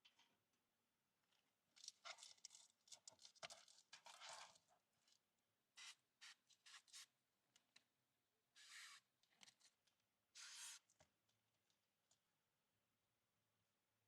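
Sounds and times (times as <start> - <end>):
rustling and clicks of handling: 1.2 - 5.2.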